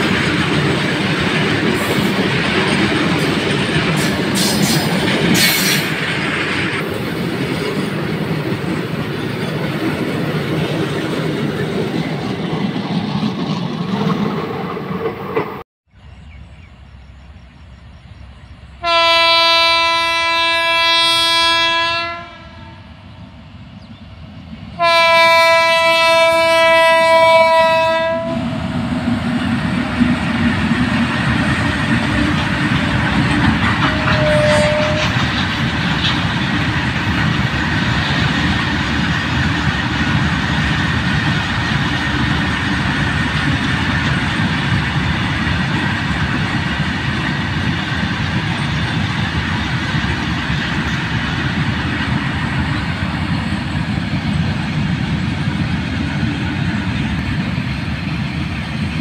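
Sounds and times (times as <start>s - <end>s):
locomotive horn blasts: 18.8s - 22.9s, 24.8s - 28.5s, 33.8s - 35.2s
wheel clickety-clack: 30.0s - 52.2s.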